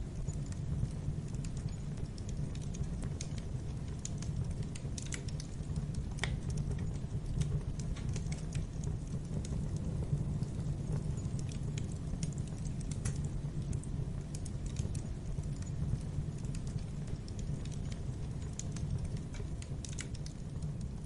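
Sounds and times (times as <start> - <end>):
low rumble of flames: 0.0 - 21.0
wood fire crackling: 0.0 - 21.0.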